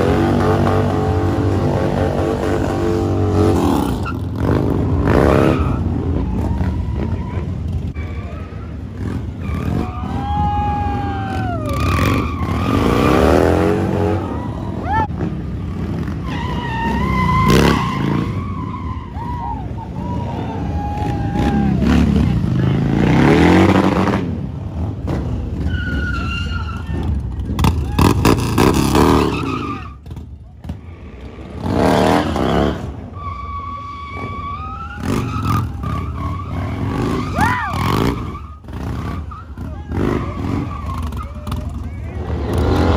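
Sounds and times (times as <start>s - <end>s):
motorcycle engine revving: 0.0s - 8.0s, 11.3s - 14.5s
motorcycle engines revving: 0.0s - 42.9s.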